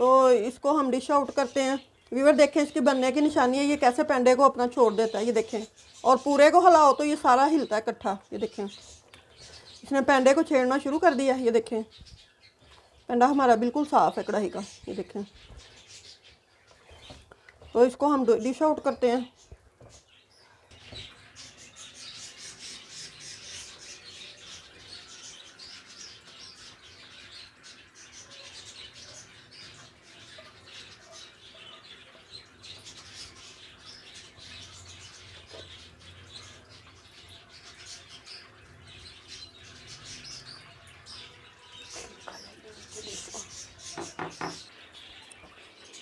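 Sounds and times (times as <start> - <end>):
small birds chirping: 0.0 - 46.0.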